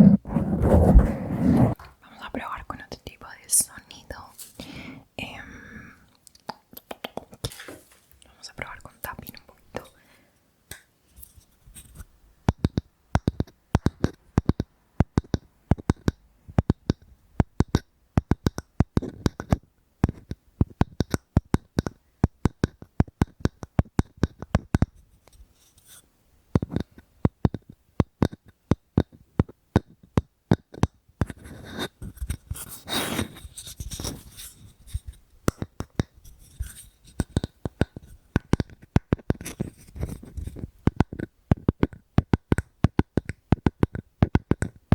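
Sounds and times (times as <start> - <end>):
scratching on wood: 0.0 - 1.8, 31.3 - 35.2
fingers tapping on wood: 12.4 - 24.9, 26.5 - 31.9, 35.4 - 44.9.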